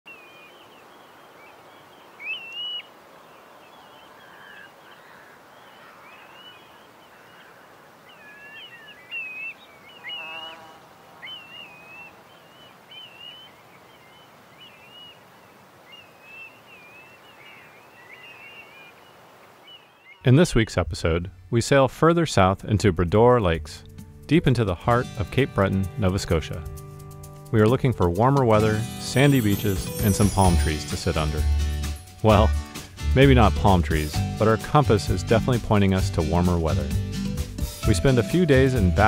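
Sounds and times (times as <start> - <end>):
birds chirping and whistling: 0.1 - 15.2, 15.9 - 20.3
faint steady hiss: 0.1 - 24.6.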